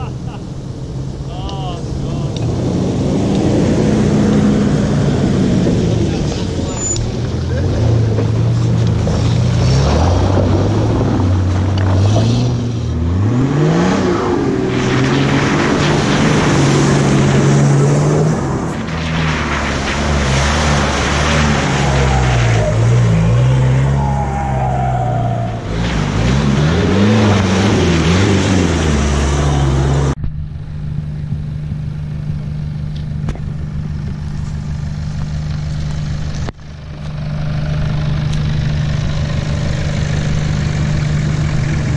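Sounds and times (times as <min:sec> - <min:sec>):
off-road engine revving: 0:00.0 - 0:41.9
rushing noise: 0:12.3 - 0:30.2.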